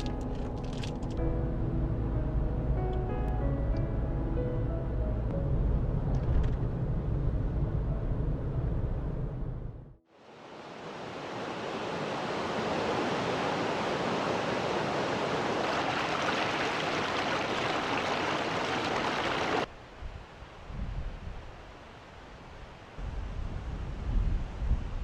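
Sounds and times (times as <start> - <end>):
low rumble: 0.0 - 10.0
mountain stream rushing: 10.2 - 19.7.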